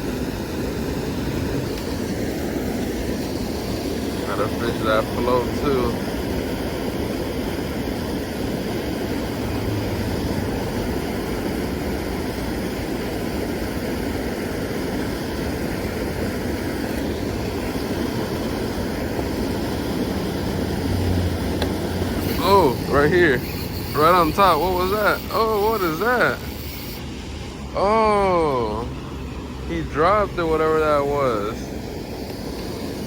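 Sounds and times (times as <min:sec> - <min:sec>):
engine drone: 0:00.0 - 0:33.0.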